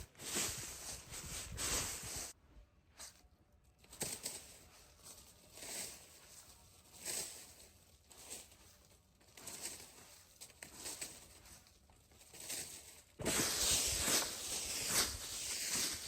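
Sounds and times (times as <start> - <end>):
rustling and crunching in dry leaves: 0.0 - 2.4, 3.8 - 16.0
soft rustles and light knocks: 3.8 - 16.0.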